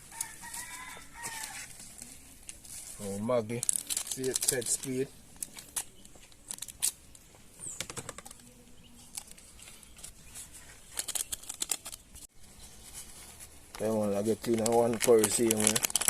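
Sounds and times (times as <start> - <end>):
plastic packet crinkling: 0.0 - 7.1, 8.0 - 12.3, 13.7 - 16.0
packet tearing: 3.0 - 7.0, 10.8 - 12.1, 13.8 - 16.0.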